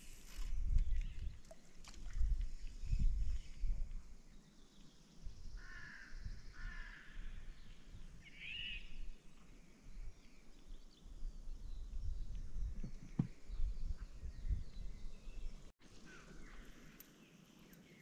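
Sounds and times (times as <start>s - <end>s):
bird cawing: 5.6s - 7.2s, 16.0s - 17.0s.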